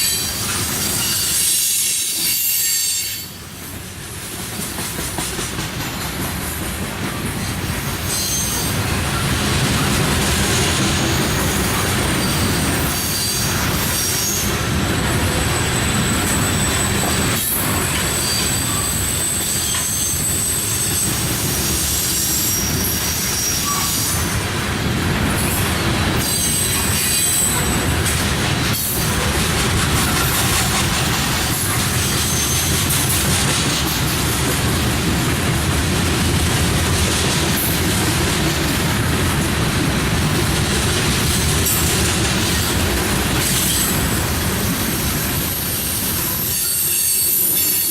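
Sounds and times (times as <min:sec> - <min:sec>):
train wheels squealing: 0:00.0 - 0:03.5, 0:07.4 - 0:24.4, 0:26.2 - 0:28.0, 0:28.8 - 0:34.2, 0:43.4 - 0:47.9
railroad cars rumbling past: 0:00.0 - 0:47.9.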